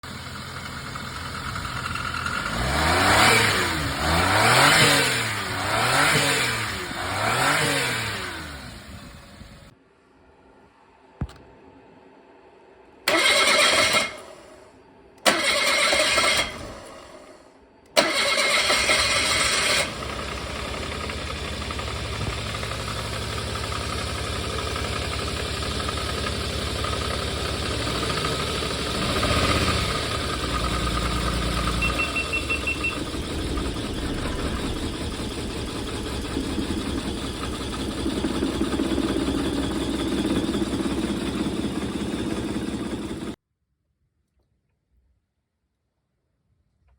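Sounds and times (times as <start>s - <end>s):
engine idling: 0.0s - 9.7s, 18.0s - 43.4s
engine starter cranking: 13.1s - 14.6s, 15.2s - 17.3s, 17.9s - 23.7s, 25.9s - 43.4s
high beeping: 31.1s - 37.8s.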